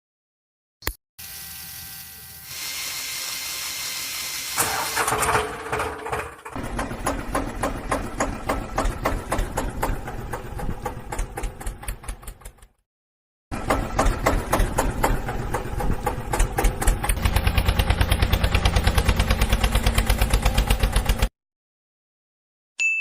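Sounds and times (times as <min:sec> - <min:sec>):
engine starting and idling: 0:04.5 - 0:12.8, 0:13.5 - 0:21.3.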